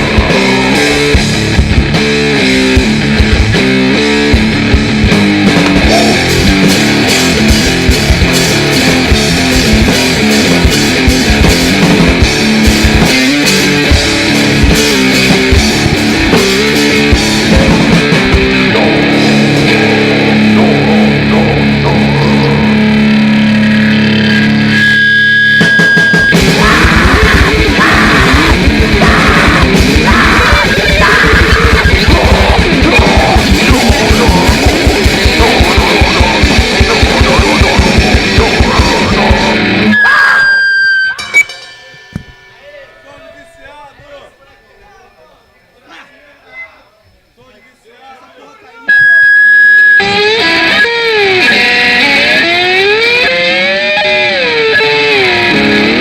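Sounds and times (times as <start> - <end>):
fast drumming: 0.0 - 20.9, 25.6 - 39.8
distorted electric guitar: 0.0 - 42.5, 48.9 - 56.0
high steady tone: 24.2 - 28.6.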